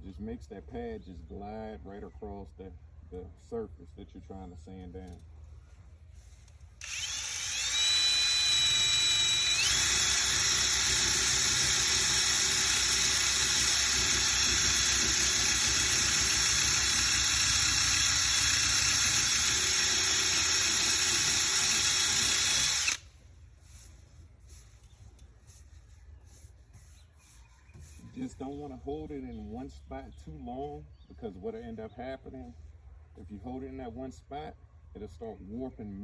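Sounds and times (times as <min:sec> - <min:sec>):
power drill sanding paint: 0:06.8 - 0:23.0.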